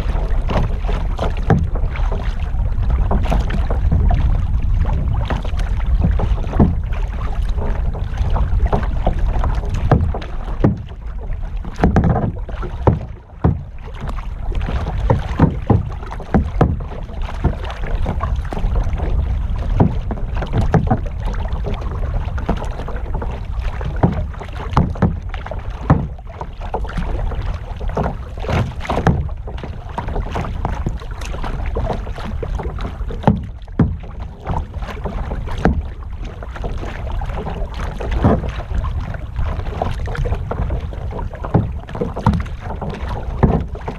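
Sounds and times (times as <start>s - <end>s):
paddle splashing in water: 0.0s - 43.9s
wind on microphone: 0.0s - 43.9s.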